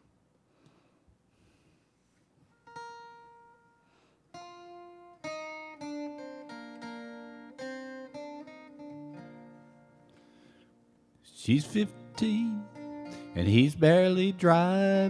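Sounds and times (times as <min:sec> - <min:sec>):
acoustic guitar strumming chords: 0:04.4 - 0:15.0.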